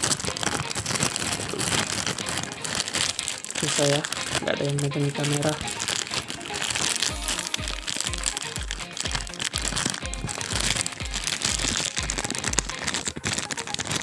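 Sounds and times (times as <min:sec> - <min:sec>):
plastic packaging crinkling: 0:00.0 - 0:14.0
background music with bass beat: 0:04.1 - 0:14.0.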